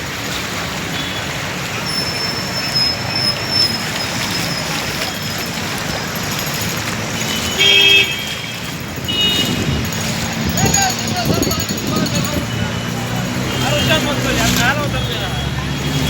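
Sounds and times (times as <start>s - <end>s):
traffic on a wet road: 0.0s - 16.0s
car horn blast: 7.5s - 8.5s, 9.1s - 9.8s.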